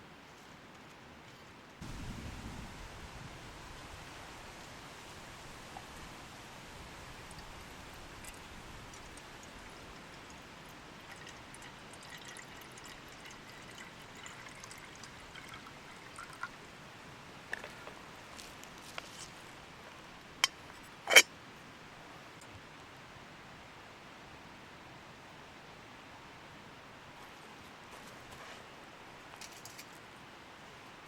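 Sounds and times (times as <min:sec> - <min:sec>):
liquid being poured: 0:08.2 - 0:16.6.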